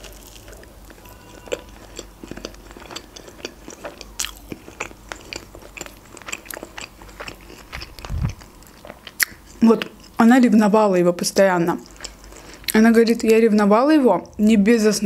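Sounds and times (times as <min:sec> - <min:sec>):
person chewing food: 0:00.0 - 0:10.2, 0:11.8 - 0:12.8.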